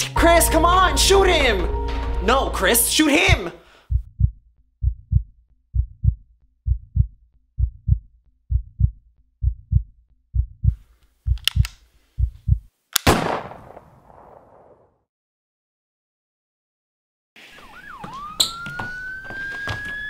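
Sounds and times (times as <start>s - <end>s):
heartbeat thuds: 3.3s - 12.7s
pistol clicks: 11.4s - 11.8s, 12.9s - 13.4s
loud pistol shot: 13.0s - 14.6s.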